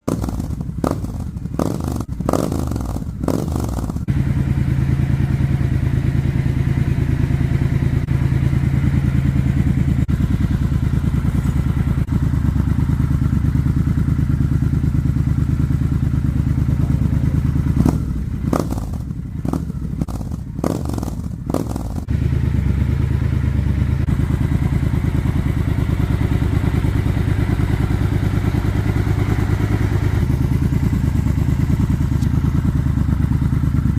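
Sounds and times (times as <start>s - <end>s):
quick throttle blips: 0.0s - 4.1s
motorcycle engine idling: 0.0s - 33.9s.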